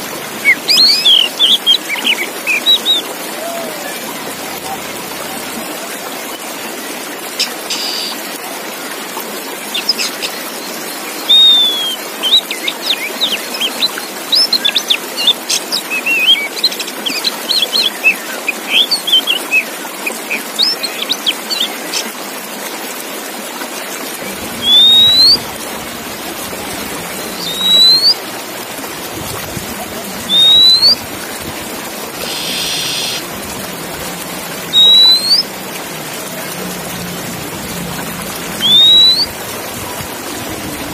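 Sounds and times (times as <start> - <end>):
bird chirps and whistles: 11.3 - 12.0, 24.6 - 25.4, 27.3 - 28.2, 30.3 - 31.0, 32.2 - 33.2, 34.7 - 35.5, 38.6 - 39.3
rising bird whistles: 11.3 - 12.0, 24.5 - 25.6, 26.6 - 28.2, 30.3 - 31.0, 32.2 - 33.2, 34.6 - 35.5, 38.6 - 39.4.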